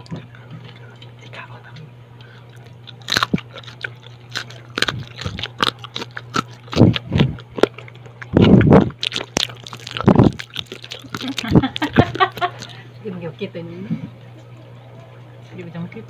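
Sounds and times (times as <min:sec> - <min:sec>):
low hum: 0:00.0 - 0:16.0
crunching crispy food: 0:02.4 - 0:12.8.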